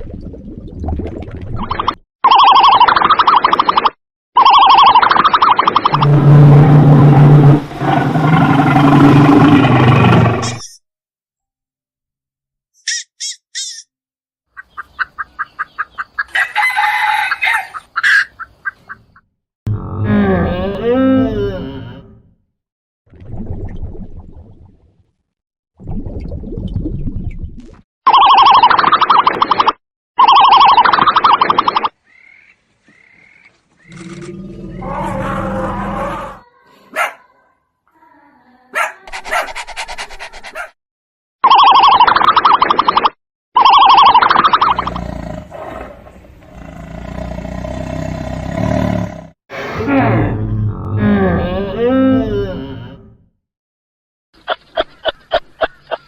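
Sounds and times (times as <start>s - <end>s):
low growl-like animal call: 5.9s - 10.7s, 19.7s - 22.2s, 33.8s - 36.5s, 44.6s - 53.2s
chickens clucking: 14.6s - 16.6s, 17.5s - 19.2s
chickens calling: 14.6s - 19.2s.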